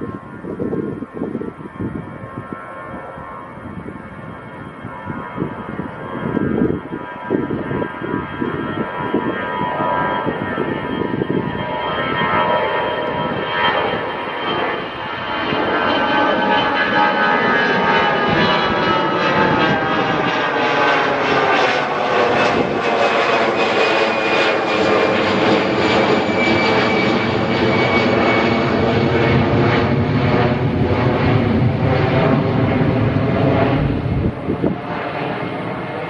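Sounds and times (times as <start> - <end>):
jet engines whining: 0.0 - 36.0.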